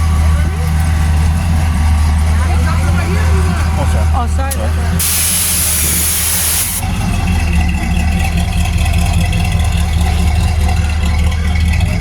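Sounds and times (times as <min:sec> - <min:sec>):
car engine idling: 0:00.0 - 0:12.0
loud hiss: 0:05.0 - 0:06.8.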